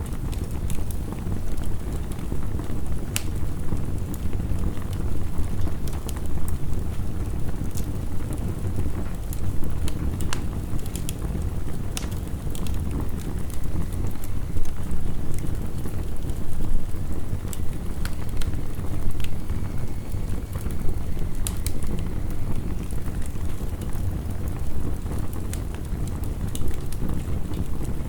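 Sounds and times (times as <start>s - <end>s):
wood fire crackling: 0.0s - 28.0s
sharp pops of fire: 9.3s - 27.9s.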